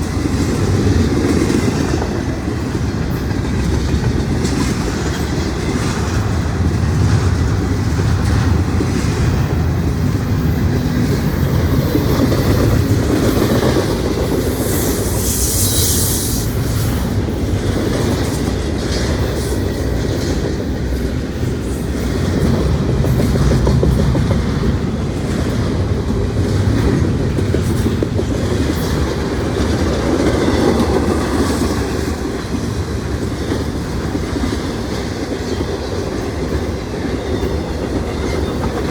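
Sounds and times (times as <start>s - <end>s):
freight train rumbling past: 0.0s - 38.9s
wheels clacking over rails: 0.0s - 38.9s
high-pitched hiss: 14.5s - 17.1s.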